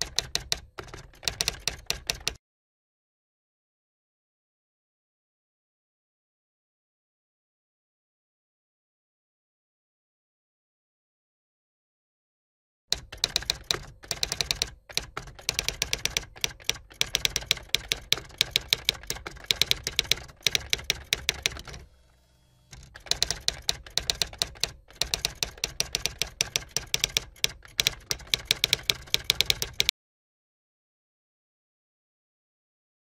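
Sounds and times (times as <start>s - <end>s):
typewriter key clicks: 0.0s - 2.4s, 12.9s - 21.9s, 22.7s - 29.9s.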